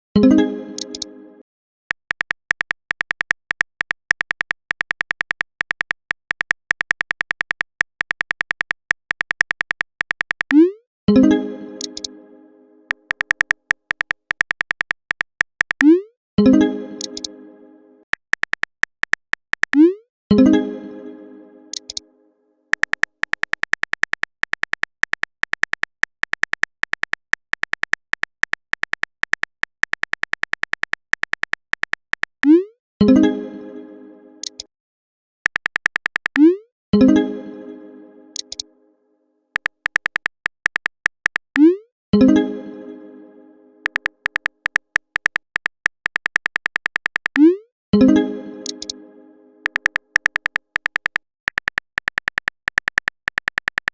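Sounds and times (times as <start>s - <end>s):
keyboard typing ticks: 0.8s - 1.1s, 1.9s - 10.8s, 11.8s - 12.1s, 12.9s - 16.1s, 17.0s - 17.3s, 18.1s - 20.0s, 21.7s - 22.0s, 22.7s - 32.7s, 34.4s - 34.7s, 35.4s - 36.6s, 38.4s - 38.6s, 39.6s - 41.8s, 43.8s - 47.6s, 48.6s - 49.0s, 49.6s - 53.9s
short electronic typing beeps: 12.9s - 16.1s, 34.4s - 34.7s, 35.5s - 36.6s, 38.4s - 38.6s, 39.6s - 41.9s, 43.8s - 47.7s, 49.6s - 53.9s.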